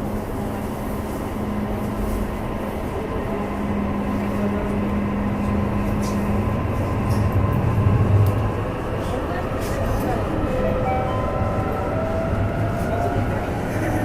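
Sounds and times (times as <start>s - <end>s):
wheel and rail rumble: 0.0s - 14.0s.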